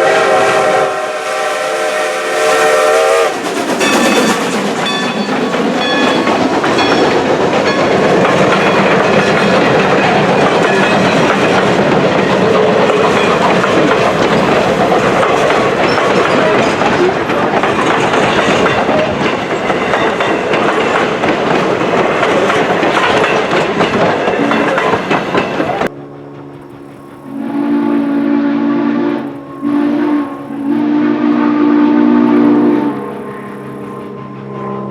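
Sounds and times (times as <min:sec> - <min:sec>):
steam whistle: 0:00.0 - 0:05.2, 0:27.1 - 0:34.1
train rolling past: 0:00.0 - 0:34.9
wheels clicking over rail joints: 0:03.4 - 0:28.3.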